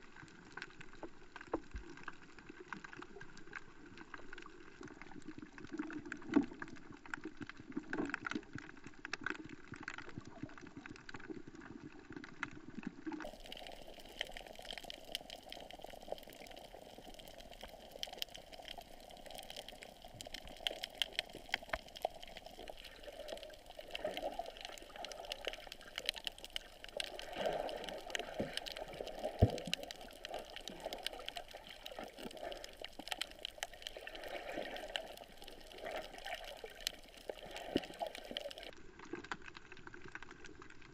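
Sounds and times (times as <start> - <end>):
small clicks and crackles: 0.0 - 40.9
muffled underwater sloshing: 13.2 - 38.8.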